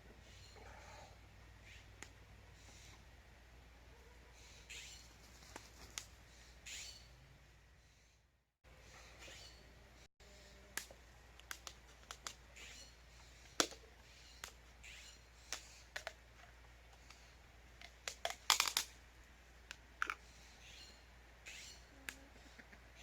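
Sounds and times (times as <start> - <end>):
faint bird chirps: 3.9 - 8.2, 8.8 - 10.7, 12.5 - 15.9, 20.2 - 23.0.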